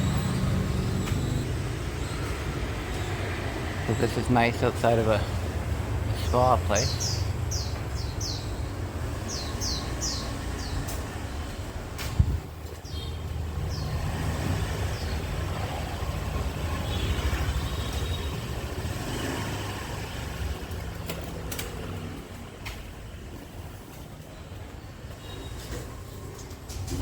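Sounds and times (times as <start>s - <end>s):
vehicle engine running: 0.0s - 4.5s.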